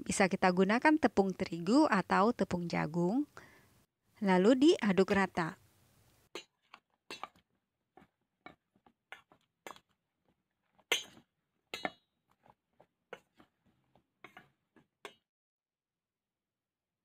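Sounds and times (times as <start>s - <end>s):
metal spoon clinking in steel bowl: 7.1s - 7.4s, 11.8s - 12.0s.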